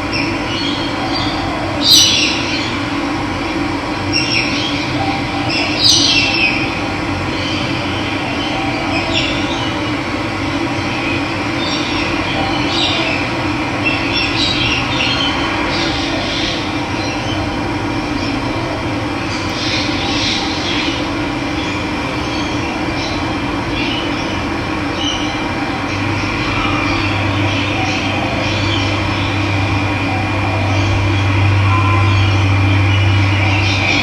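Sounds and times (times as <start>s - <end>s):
birds chirping: 19.2s - 34.0s.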